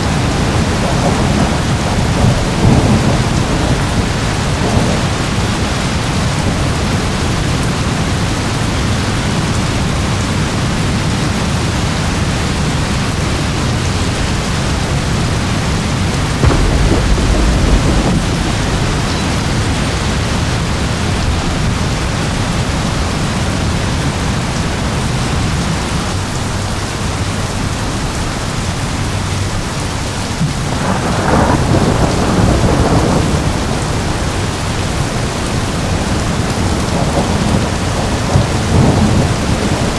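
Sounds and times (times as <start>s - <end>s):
rolling thunder: 0.0s - 8.5s, 14.2s - 24.2s, 30.2s - 39.9s
heavy rain: 0.0s - 39.9s.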